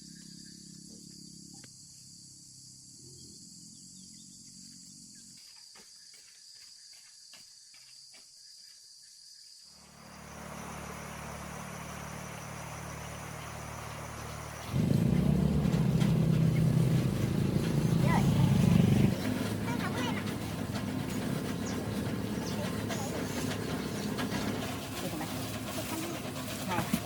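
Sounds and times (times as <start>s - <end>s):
insects chirring: 0.0s - 26.9s
motor humming and hissing: 9.8s - 27.0s.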